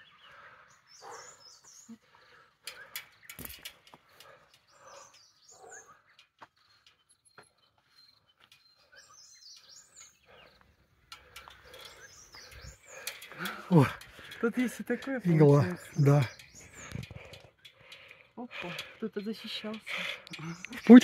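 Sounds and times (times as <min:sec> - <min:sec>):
birds chirping: 0:00.0 - 0:21.0
soft bird calls: 0:00.0 - 0:21.0
scattered clicks: 0:11.1 - 0:21.0.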